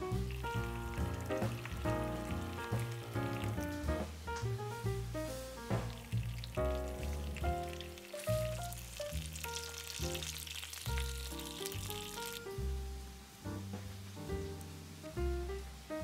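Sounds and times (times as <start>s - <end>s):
food sizzling in a pan: 0.0s - 12.7s
background music with bass line: 0.0s - 16.0s.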